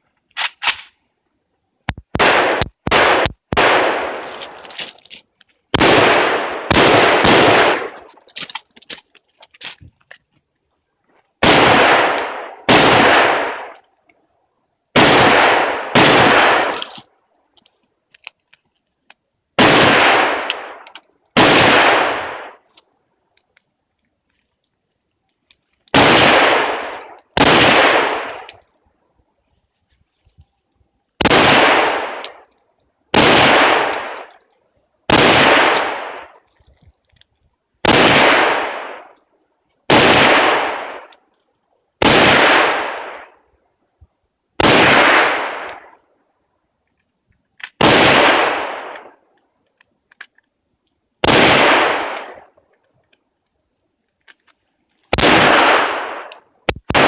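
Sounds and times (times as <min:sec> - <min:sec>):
gunshots: 0:02.1 - 0:04.7, 0:05.7 - 0:08.1, 0:11.4 - 0:13.7, 0:15.0 - 0:17.0, 0:19.6 - 0:20.8, 0:21.4 - 0:22.6, 0:25.9 - 0:28.5, 0:31.2 - 0:32.4, 0:33.1 - 0:34.3, 0:35.1 - 0:36.4, 0:37.8 - 0:39.1, 0:39.9 - 0:41.1, 0:42.0 - 0:43.3, 0:44.6 - 0:45.9, 0:47.8 - 0:49.1, 0:51.2 - 0:52.4, 0:55.1 - 0:57.0.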